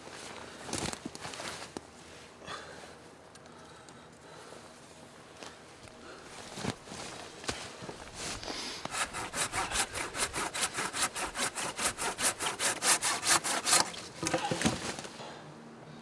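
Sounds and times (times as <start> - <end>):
hand saw cutting wood: 8.8 - 14.8.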